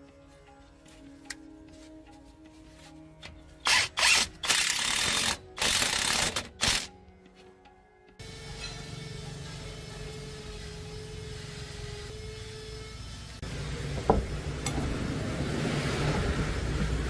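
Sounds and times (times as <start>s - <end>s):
quiet background music: 0.0s - 13.0s
power tool running: 3.6s - 6.9s, 8.2s - 13.8s.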